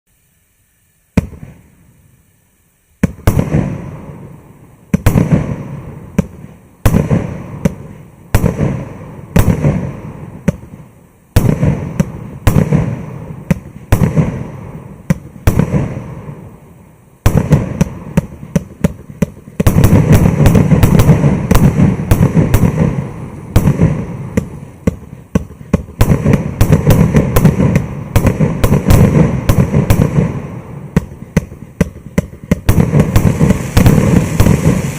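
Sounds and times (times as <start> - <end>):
firework cake shots: 17.2 - 34.9.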